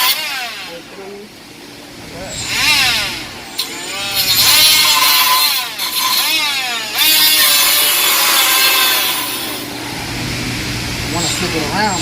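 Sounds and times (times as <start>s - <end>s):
die grinder whining while cutting: 0.0s - 0.8s, 2.4s - 9.7s.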